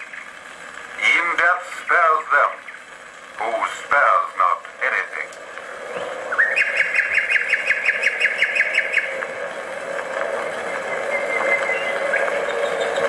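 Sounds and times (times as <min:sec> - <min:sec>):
drone of aircraft engines: 0:00.0 - 0:13.0
nightingale singing: 0:05.9 - 0:09.8, 0:10.4 - 0:13.0.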